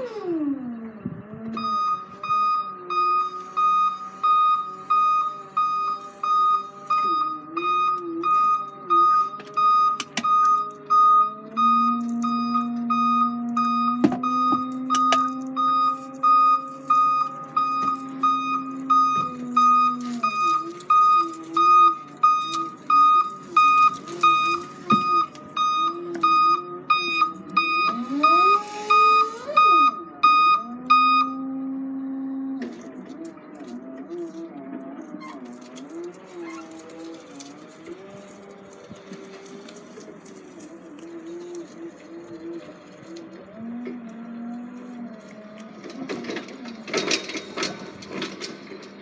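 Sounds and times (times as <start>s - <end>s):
engine running and revving: 0.0s - 48.2s
reversing alarm beeping: 1.5s - 32.5s.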